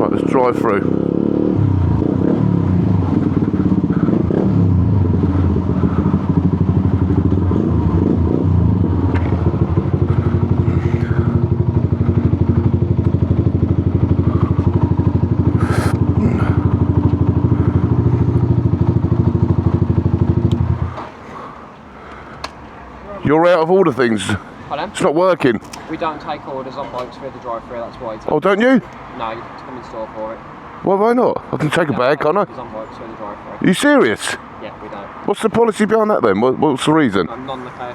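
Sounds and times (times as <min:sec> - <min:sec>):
motorcycle engine running: 0:00.0 - 0:21.1.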